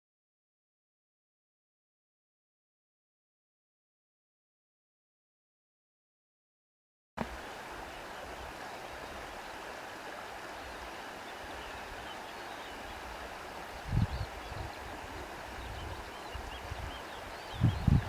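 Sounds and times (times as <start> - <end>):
stream water rushing: 7.2 - 18.0.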